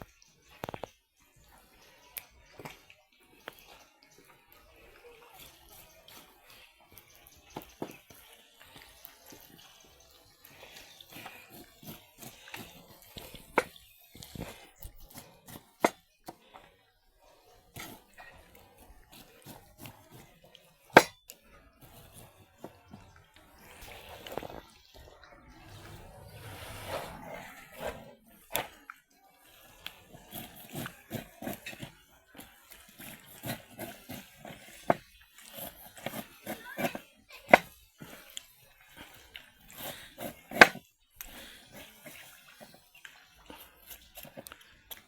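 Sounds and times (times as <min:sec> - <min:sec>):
pots and dishes clinking: 0:20.8 - 0:22.3.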